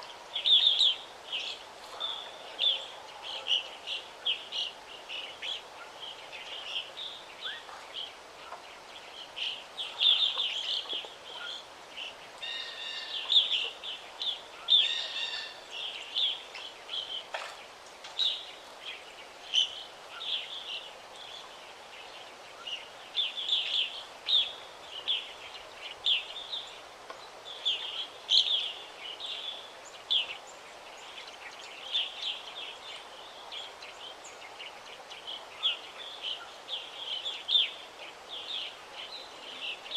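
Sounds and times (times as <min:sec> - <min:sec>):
faint background hiss: 0:00.0 - 0:39.9
songbirds chirping and trilling: 0:00.0 - 0:39.9.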